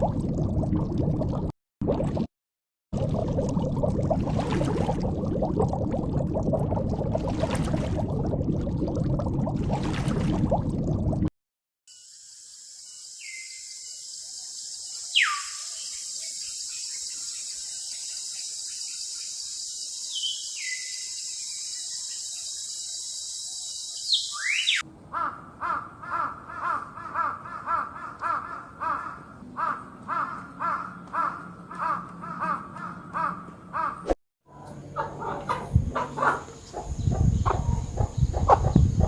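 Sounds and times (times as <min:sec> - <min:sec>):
falling whistled calls: 0:14.6 - 0:17.1, 0:19.8 - 0:24.8.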